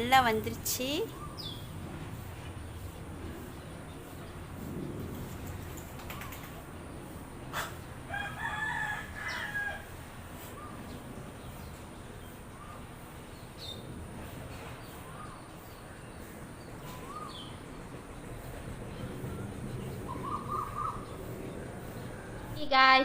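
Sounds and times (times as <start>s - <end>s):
low background noise: 0.0s - 23.0s
rooster crowing: 8.1s - 10.2s.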